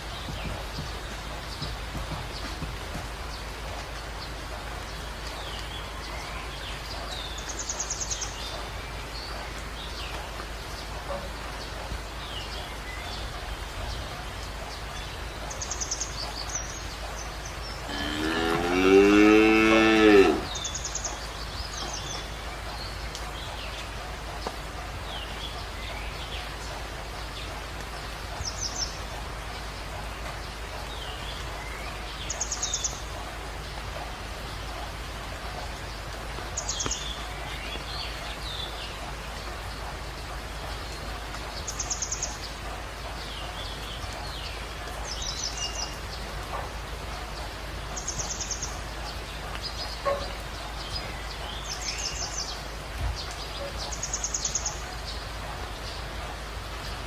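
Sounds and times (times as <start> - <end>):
cow mooing: 17.9 - 20.5.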